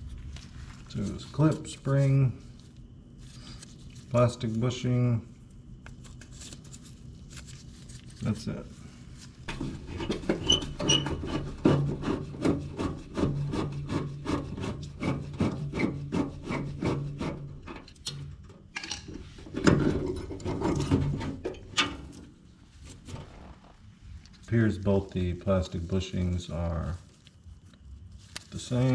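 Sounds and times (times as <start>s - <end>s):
hand scraping metal: 9.5s - 18.4s, 19.1s - 24.7s.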